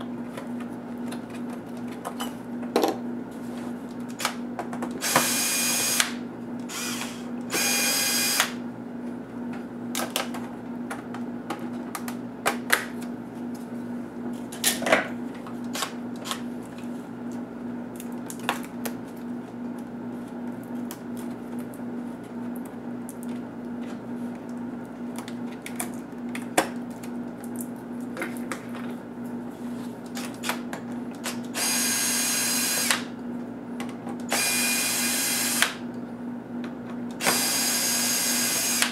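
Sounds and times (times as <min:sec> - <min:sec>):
power screwdriver whirring: 0:05.0 - 0:08.6, 0:31.6 - 0:33.0, 0:34.3 - 0:35.8, 0:37.2 - 0:38.9.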